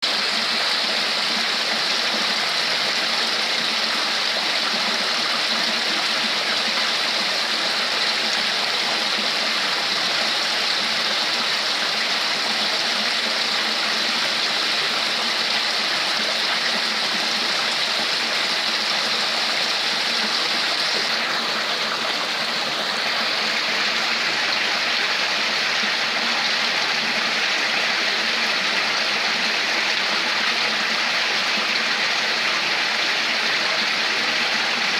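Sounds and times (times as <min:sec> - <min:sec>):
water flowing and splashing: 0:00.0 - 0:34.9.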